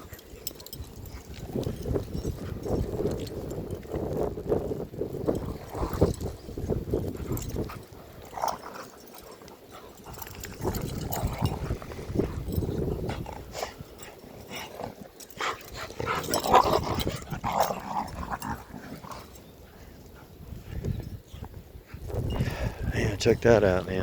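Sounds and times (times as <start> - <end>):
dogs growling: 5.2 - 20.3.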